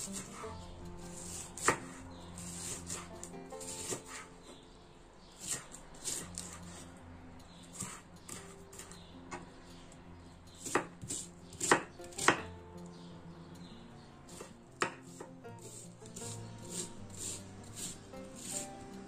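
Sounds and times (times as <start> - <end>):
knife chopping on wooden board: 0.0 - 0.5, 1.2 - 4.3, 5.4 - 6.8, 7.7 - 9.4, 10.6 - 12.6, 14.3 - 18.8.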